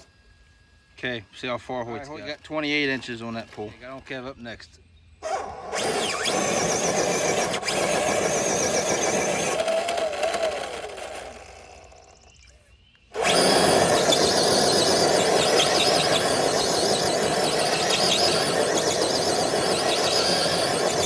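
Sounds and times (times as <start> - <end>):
electric motor whining under load: 5.2 - 12.5, 13.1 - 21.0.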